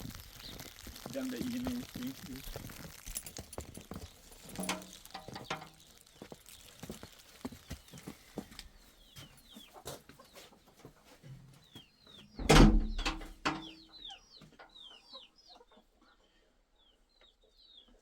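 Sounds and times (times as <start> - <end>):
chicks cheeping: 0.0 - 2.4, 5.2 - 18.0
clicks and knocks: 4.6 - 5.8, 12.4 - 13.7
loud dull thump: 12.4 - 13.5.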